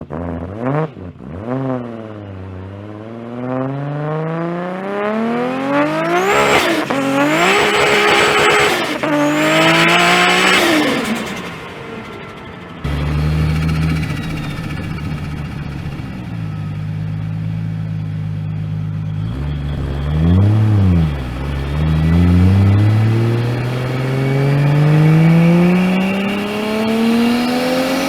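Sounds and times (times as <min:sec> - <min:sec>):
car engine accelerating hard: 0:00.0 - 0:28.0
high turbo whistle: 0:05.2 - 0:11.6.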